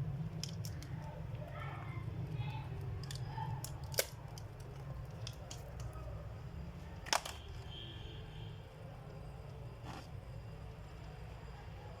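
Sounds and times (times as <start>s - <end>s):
steady low hum: 0.0s - 12.0s
laptop plastic parts clicking: 3.0s - 6.0s, 7.0s - 7.7s.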